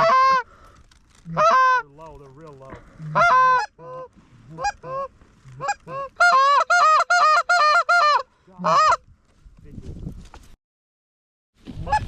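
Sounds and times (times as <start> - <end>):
goose call honking: 0.0 - 0.5, 1.3 - 1.8, 3.0 - 9.0.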